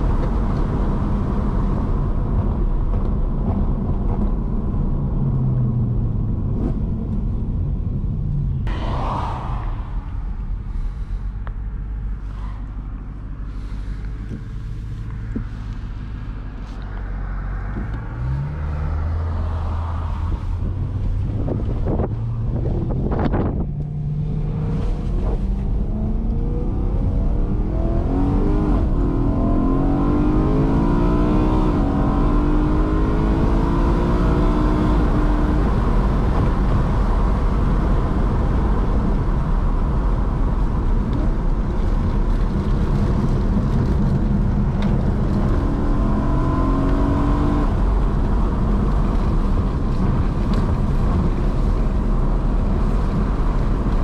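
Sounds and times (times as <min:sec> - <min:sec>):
car engine accelerating: 0:08.6 - 0:54.0
tyre and wind noise: 0:19.3 - 0:54.0.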